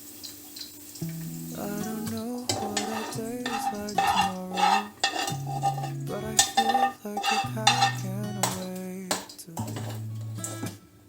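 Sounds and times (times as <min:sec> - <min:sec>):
metal utensil clinking against pan: 0:02.5 - 0:10.2.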